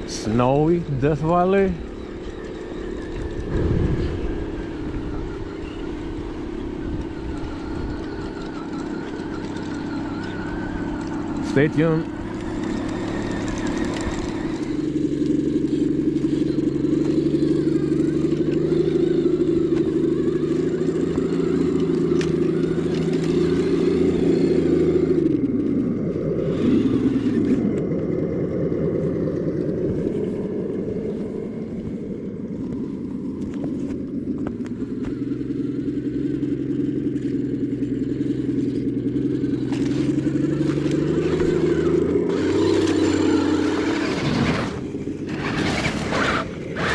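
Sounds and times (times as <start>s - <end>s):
toy truck motor running: 0.0s - 31.5s, 32.7s - 46.9s.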